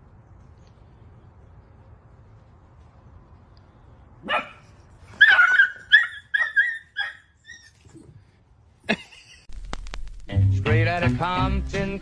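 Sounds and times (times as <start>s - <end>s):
dog yipping and whimpering: 4.3s - 8.1s.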